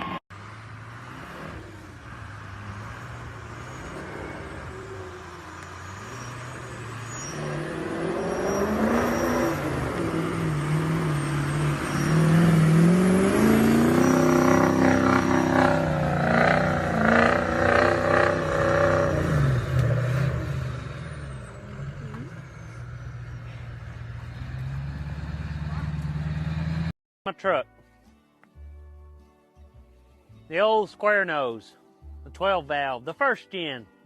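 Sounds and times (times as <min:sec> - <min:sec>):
truck engine revving: 0:00.0 - 0:27.0.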